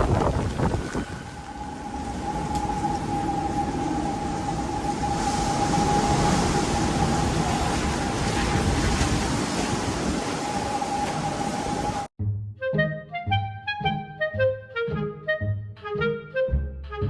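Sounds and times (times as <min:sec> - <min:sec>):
wind gusts: 0:00.0 - 0:12.1
wind whistling: 0:00.0 - 0:12.1.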